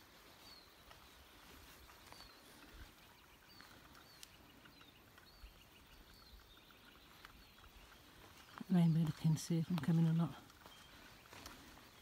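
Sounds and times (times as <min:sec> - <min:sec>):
small bird chirping: 0:00.0 - 0:12.0
soft ticks: 0:03.9 - 0:05.4.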